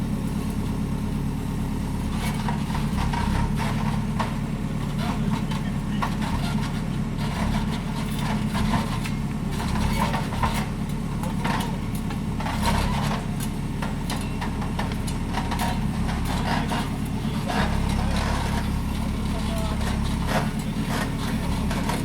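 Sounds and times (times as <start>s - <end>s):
machine engine running: 12.4s - 22.0s.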